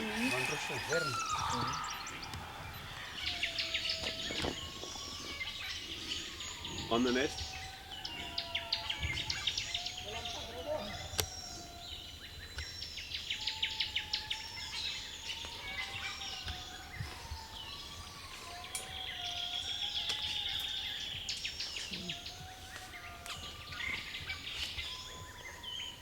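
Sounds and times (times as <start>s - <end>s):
sharp bird chips: 0.0s - 4.6s
buzzy bird trill: 0.0s - 17.5s
whistled bird calls: 0.0s - 26.0s.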